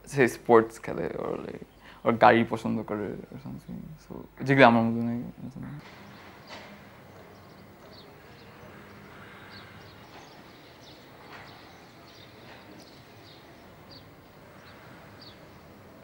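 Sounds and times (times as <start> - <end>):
faint steady hum: 0.0 - 6.0
small birds chirping: 0.8 - 16.0.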